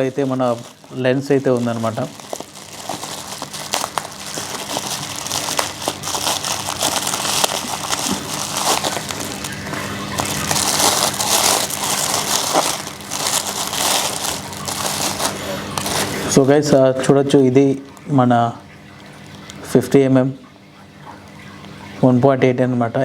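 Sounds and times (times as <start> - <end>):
bubble wrap crinkling: 0.0 - 16.5.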